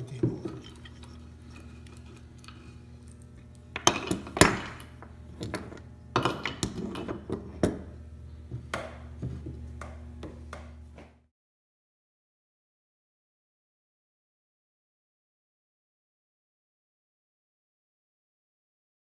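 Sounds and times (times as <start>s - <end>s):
metal tools clinking on table: 0.1s - 3.2s, 3.8s - 7.8s.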